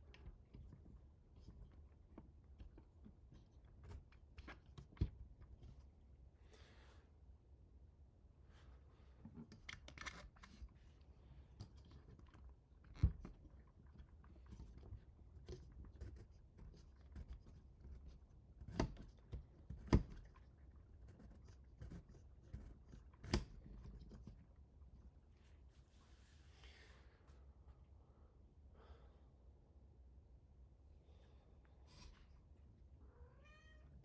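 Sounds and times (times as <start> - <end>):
light clicks and scrapes of parts: 31.6 - 32.6.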